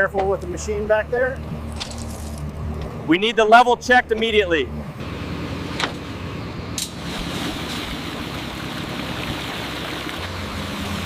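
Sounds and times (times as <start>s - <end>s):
machine engine running: 4.0s - 11.0s.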